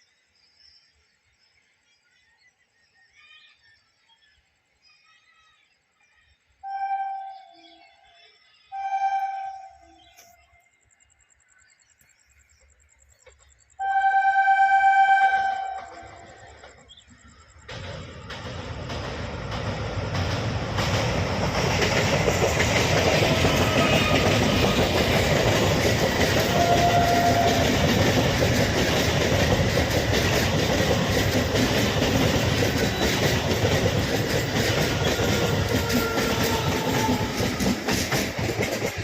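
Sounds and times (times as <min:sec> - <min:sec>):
train rumbling past: 0:12.4 - 0:39.0
wheels clattering over rail joints: 0:15.8 - 0:39.0.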